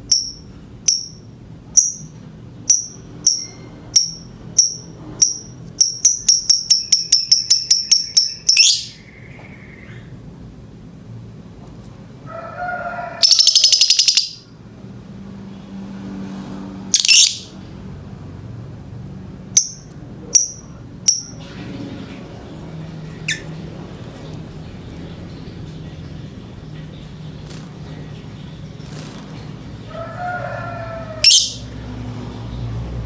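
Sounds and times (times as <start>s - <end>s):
lovebird calling: 5.3s - 10.1s, 13.2s - 14.5s, 17.0s - 17.5s, 23.3s - 23.6s, 30.6s - 31.7s.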